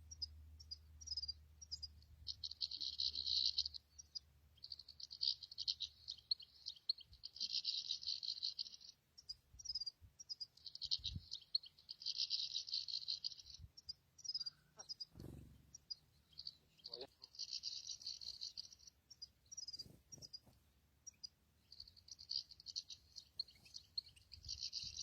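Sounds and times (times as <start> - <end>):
goldfinch twittering trills: 0.1 - 20.5, 21.1 - 25.0
bird call notes: 14.3 - 18.8.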